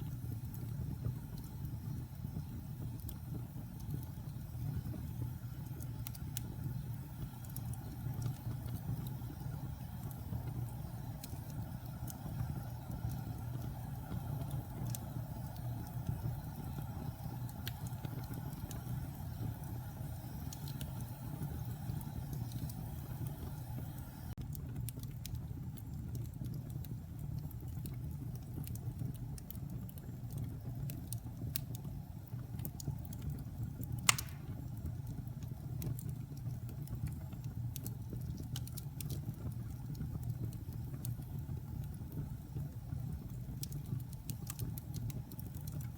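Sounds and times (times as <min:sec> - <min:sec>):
fire crackles: 0:00.0 - 0:45.9
fire flames rumbling: 0:00.0 - 0:45.9
sharp pop from fire: 0:34.0 - 0:34.7.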